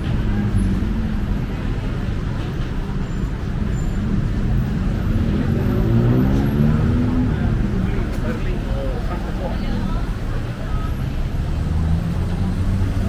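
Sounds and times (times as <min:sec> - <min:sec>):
traffic engines rumbling: 0:00.0 - 0:13.0
engine speeding up: 0:04.6 - 0:08.4.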